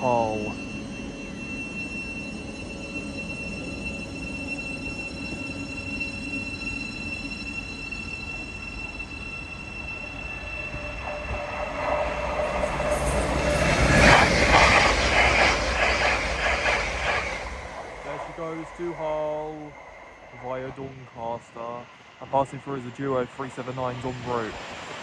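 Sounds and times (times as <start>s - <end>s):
train passing at speed: 0.0s - 25.0s
wheels clattering on rails: 10.2s - 21.5s.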